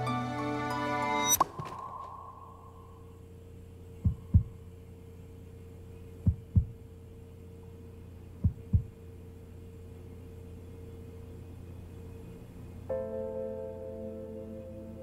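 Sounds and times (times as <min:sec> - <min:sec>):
low hum: 0:00.0 - 0:15.0
heartbeat thumps: 0:04.0 - 0:04.6, 0:06.2 - 0:06.8, 0:08.4 - 0:09.0.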